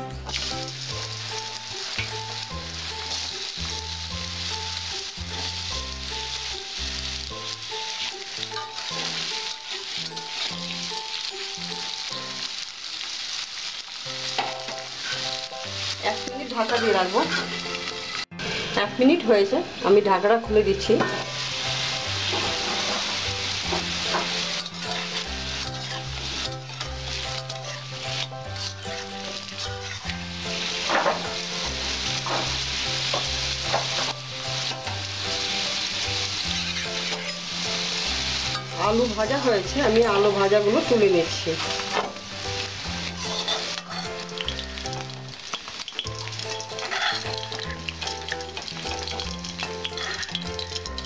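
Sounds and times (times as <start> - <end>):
background music: 0.0 - 12.4, 14.2 - 45.4, 46.1 - 51.0
potatoes sizzling in hot oil: 0.0 - 51.0
spatula stirring: 0.1 - 18.0, 20.8 - 51.0
metal spatula scraping pan: 16.1 - 18.8, 20.9 - 34.1, 39.5 - 44.7, 46.5 - 50.5.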